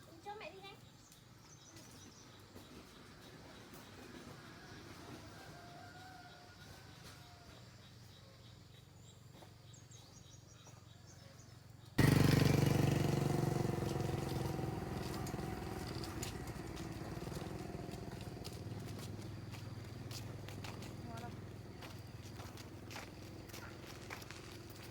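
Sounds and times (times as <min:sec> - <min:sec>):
engine running: 0:12.0 - 0:24.9.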